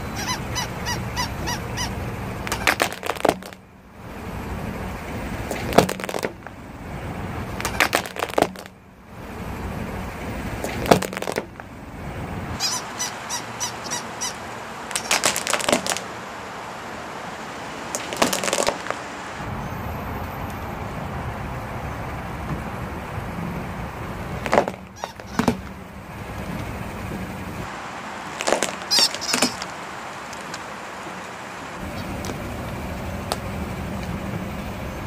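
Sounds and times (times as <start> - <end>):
plastic toys crunching under tire: 0.2 - 3.6, 5.4 - 6.6, 7.4 - 8.8, 10.5 - 11.7, 13.8 - 16.1, 17.9 - 19.1, 24.4 - 25.8, 28.2 - 30.6
steady low rumble: 18.8 - 28.4.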